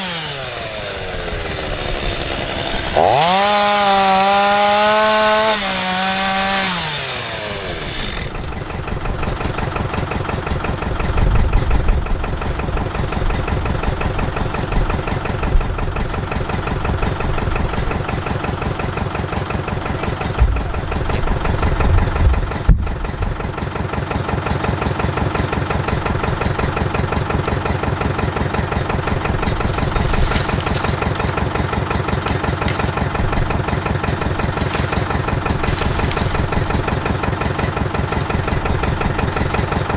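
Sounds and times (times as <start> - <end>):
chainsaw engine: 0.0 - 22.7, 23.3 - 39.9
low thumps: 20.4 - 23.1.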